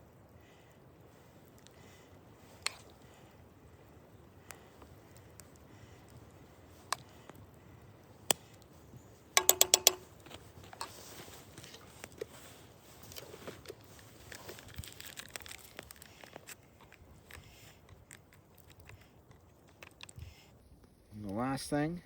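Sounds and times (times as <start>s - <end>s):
metal utensil tapping a pot: 9.4s - 10.1s.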